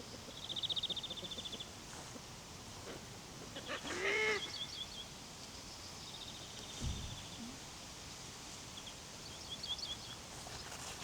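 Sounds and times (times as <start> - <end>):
soft low thump: 6.8 - 7.2.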